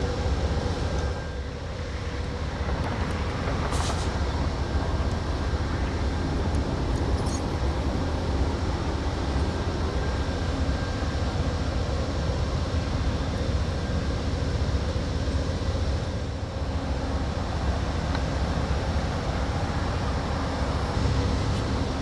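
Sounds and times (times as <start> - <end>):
train rumbling past: 0.0 - 22.0.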